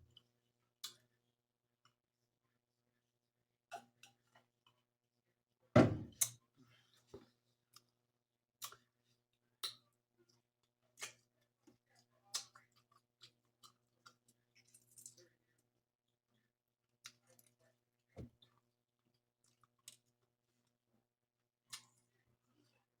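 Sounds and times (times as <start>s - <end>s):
wet chewing and mouth smacks: 8.6s - 8.9s, 12.3s - 15.3s, 19.4s - 20.2s.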